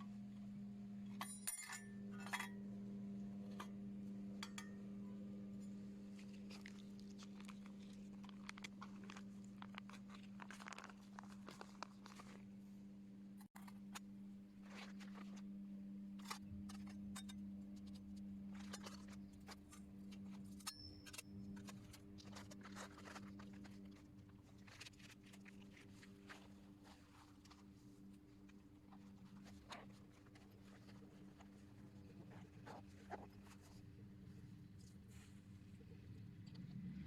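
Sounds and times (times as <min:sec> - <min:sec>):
steady low hum: 0:00.0 - 0:37.0
faint clicks and crackles: 0:05.6 - 0:12.7.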